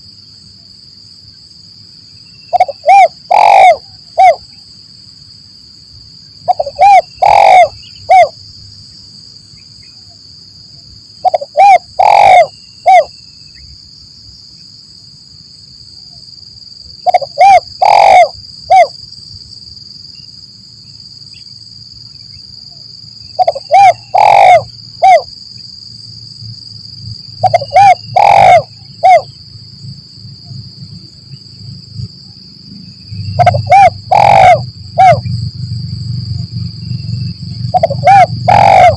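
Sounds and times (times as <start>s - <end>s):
dove cooing: 2.5s - 4.4s, 6.5s - 8.4s, 11.2s - 13.1s, 17.0s - 18.9s, 23.4s - 25.3s, 27.4s - 29.3s, 33.4s - 35.3s, 37.7s - 38.9s
high-pitched whine: 25.9s - 38.9s.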